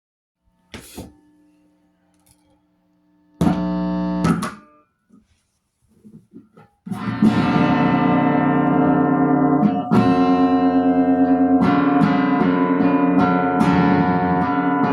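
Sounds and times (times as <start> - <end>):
guitar chords ringing: 3.4 - 4.8, 7.0 - 14.9
guitar strumming: 6.9 - 14.9.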